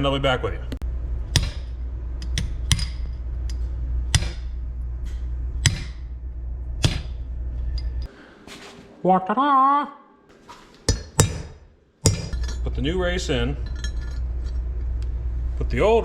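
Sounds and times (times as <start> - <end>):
steady low hum: 0.0 - 9.0, 10.8 - 16.0
hammer striking metal: 1.3 - 4.6, 5.6 - 6.1, 6.8 - 7.2, 10.9 - 12.8.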